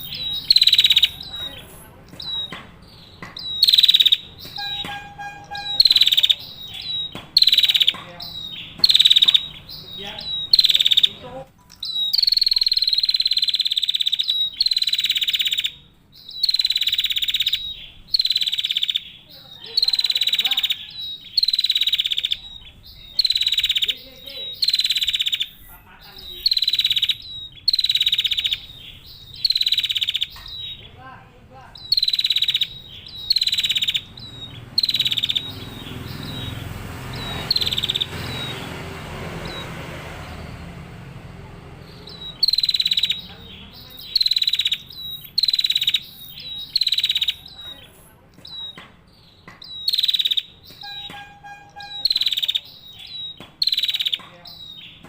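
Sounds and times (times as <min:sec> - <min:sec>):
bird rattling calls: 0:00.0 - 0:30.9, 0:31.7 - 0:38.7.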